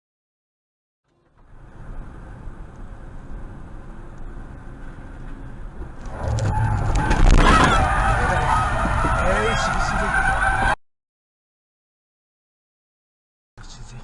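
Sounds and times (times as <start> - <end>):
car road noise: 1.1 - 10.8.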